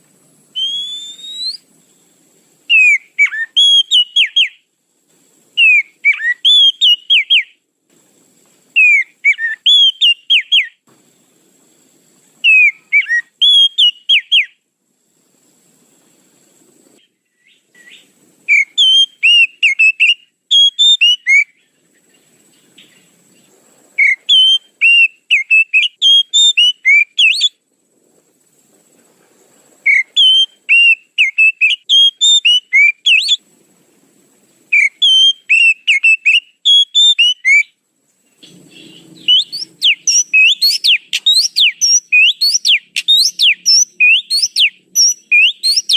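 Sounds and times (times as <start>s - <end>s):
bird whistling and chirping: 0.5s - 1.7s, 2.7s - 4.6s, 5.6s - 7.6s, 8.7s - 10.8s, 12.4s - 14.6s, 17.3s - 21.8s, 24.0s - 27.6s, 29.8s - 33.4s, 34.7s - 37.8s, 38.4s - 45.9s.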